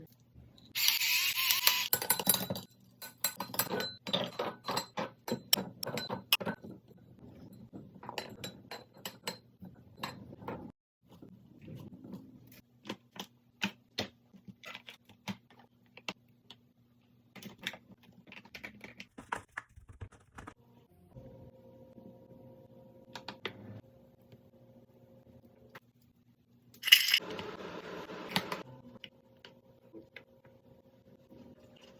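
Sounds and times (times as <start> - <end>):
utensils and dishes tapping: 1.9 - 10.7.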